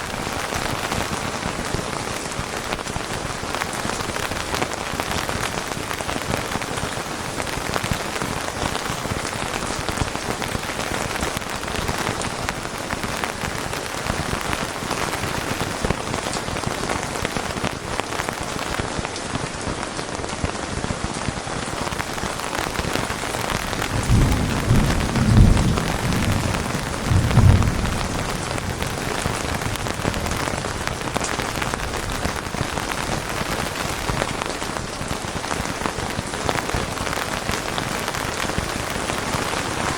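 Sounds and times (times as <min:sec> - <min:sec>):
steady rain falling: 0:00.0 - 0:39.9
low rumble of thunder: 0:21.7 - 0:32.8.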